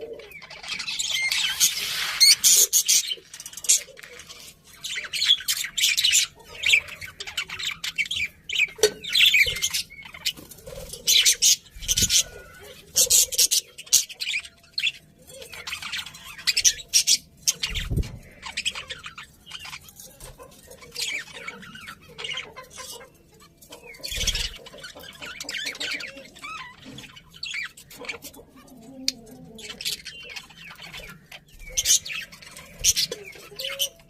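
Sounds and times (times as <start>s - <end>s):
budgerigars chirping and chattering: 0.0s - 34.0s.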